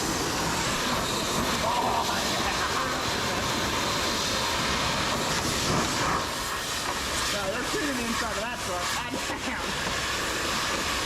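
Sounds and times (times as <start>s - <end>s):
pressure washer spraying water: 0.0s - 11.0s.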